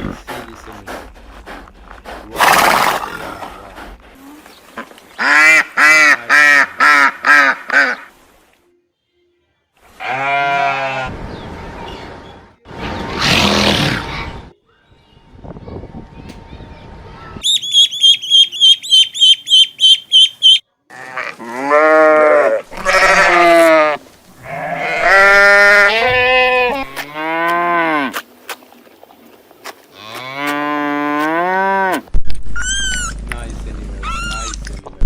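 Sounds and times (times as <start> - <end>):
farm animal bleating: 10.0 - 11.1, 20.9 - 28.1.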